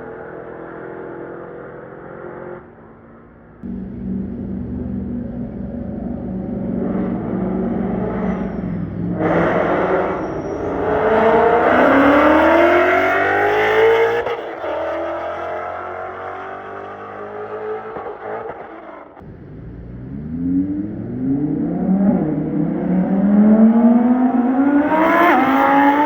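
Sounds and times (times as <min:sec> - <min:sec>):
car engine running: 0:03.6 - 0:10.2, 0:19.2 - 0:22.5
car accelerating hard: 0:03.6 - 0:26.0.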